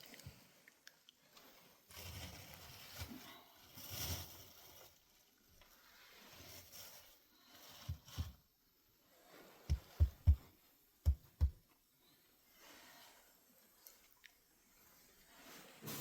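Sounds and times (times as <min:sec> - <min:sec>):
faint background noise: 0:00.0 - 0:16.0
dull low thuds: 0:09.7 - 0:11.6.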